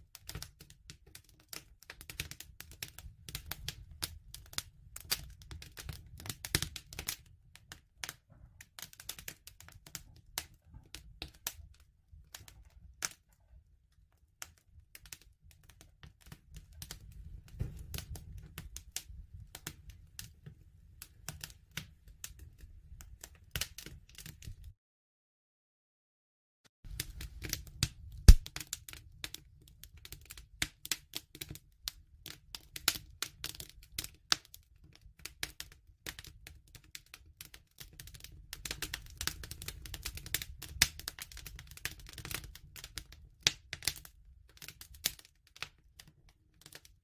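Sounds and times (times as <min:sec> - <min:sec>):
wood fire crackling: 0:00.0 - 0:24.7, 0:26.9 - 0:46.9
flames rumbling: 0:26.9 - 0:28.6.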